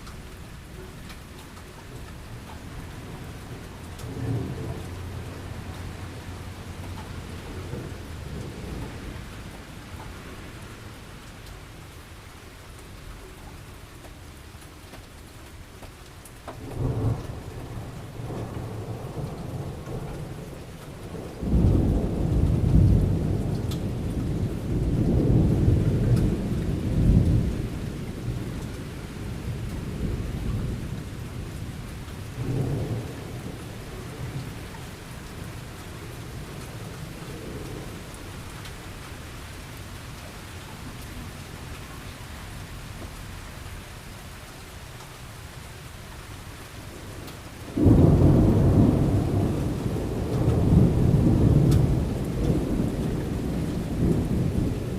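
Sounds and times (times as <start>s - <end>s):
steady rain falling: 0.0s - 54.9s
thunder rumbling: 16.6s - 39.1s, 46.9s - 54.9s.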